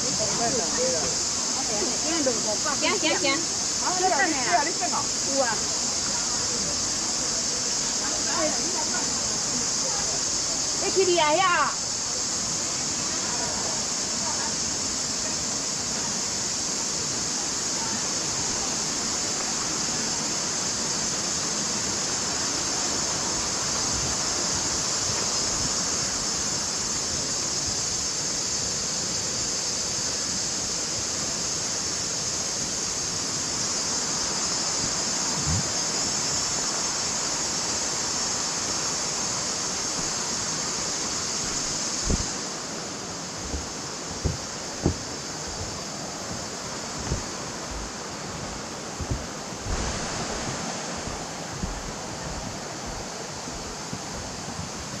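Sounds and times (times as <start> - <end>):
creek water rushing: 0.0 - 55.0
short thump: 35.4 - 35.7, 41.6 - 42.3, 43.5 - 45.8, 47.0 - 47.9.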